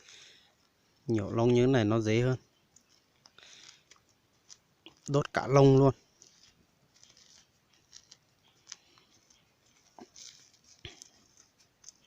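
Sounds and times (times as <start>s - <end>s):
feathers crackling over fire: 0.0s - 12.0s
rustling scratches: 2.9s - 12.0s.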